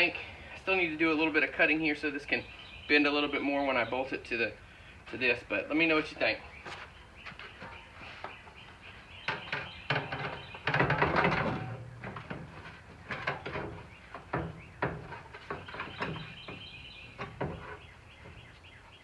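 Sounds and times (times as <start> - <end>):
metal scraping: 9.3 - 18.5
sheet metal knocking: 9.3 - 18.5.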